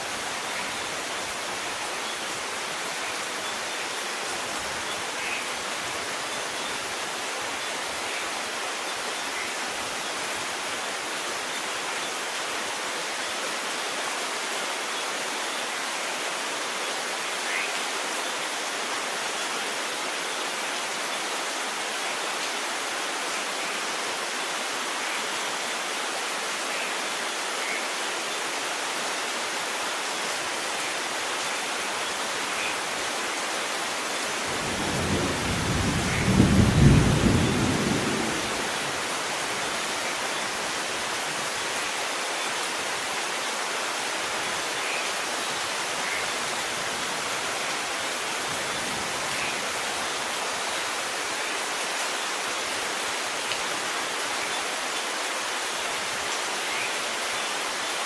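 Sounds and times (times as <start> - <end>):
steady rain falling: 0.0 - 58.0
low roll of thunder: 34.6 - 38.7.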